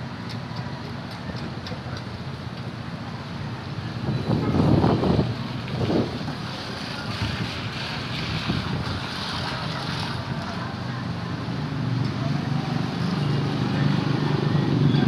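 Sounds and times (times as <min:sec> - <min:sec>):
wind buffeting microphone: 0:03.8 - 0:09.5.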